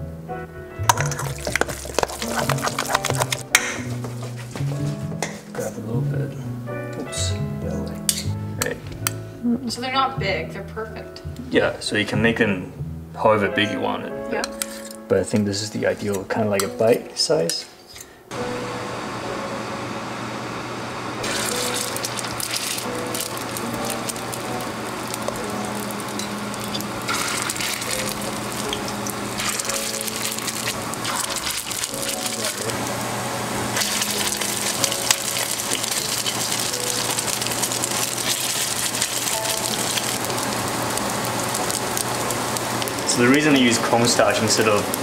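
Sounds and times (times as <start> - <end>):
soft background music: 0.0 - 20.4, 21.2 - 45.0
food sizzling in hot oil: 0.8 - 4.0, 21.2 - 45.0.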